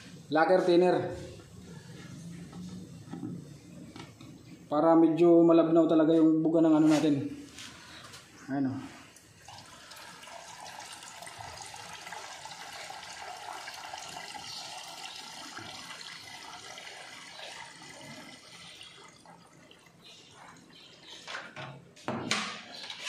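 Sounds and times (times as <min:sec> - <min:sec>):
liquid pouring into paint: 0:09.1 - 0:20.2.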